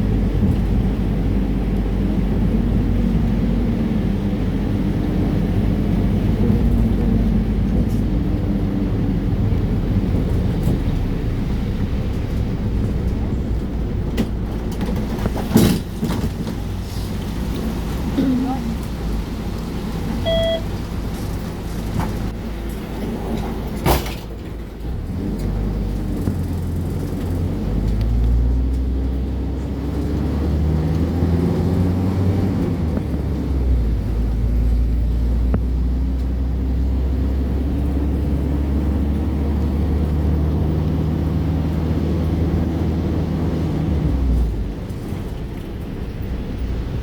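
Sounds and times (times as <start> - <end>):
vehicle engine revving: 24.8 - 47.0.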